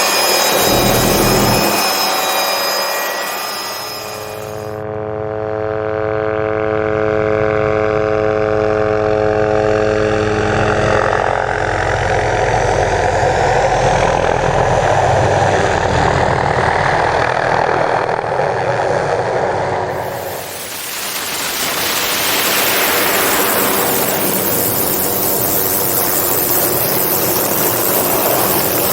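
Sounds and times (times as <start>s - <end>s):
helicopter rotor and engine: 0.0s - 28.9s
rush of wind and rotor wash: 19.6s - 28.9s
bright hiss: 20.0s - 28.9s.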